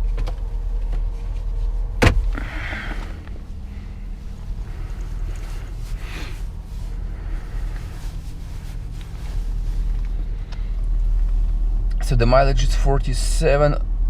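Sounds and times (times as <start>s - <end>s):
car engine rumble in cabin: 0.0s - 14.0s.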